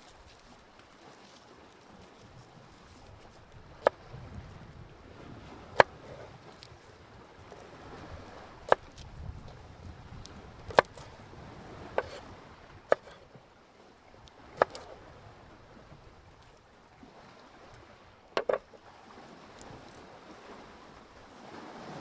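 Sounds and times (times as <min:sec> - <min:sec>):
chopping on wood: 0:05.8 - 0:06.3, 0:08.7 - 0:09.0, 0:10.7 - 0:11.1, 0:12.0 - 0:12.2, 0:12.9 - 0:13.2, 0:14.6 - 0:14.9, 0:18.4 - 0:18.6.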